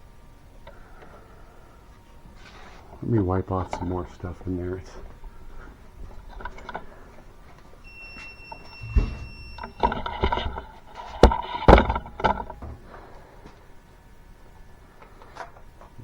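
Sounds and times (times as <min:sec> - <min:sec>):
faint high whistle: 0:07.8 - 0:09.9.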